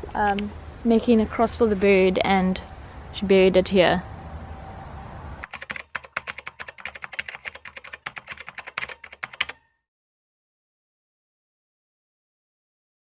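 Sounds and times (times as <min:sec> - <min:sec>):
rapid uneven clicking: 0:05.4 - 0:09.6.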